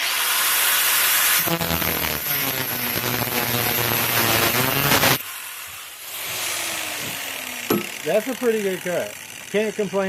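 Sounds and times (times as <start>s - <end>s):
angle grinder cutting steel: 0.0s - 10.0s.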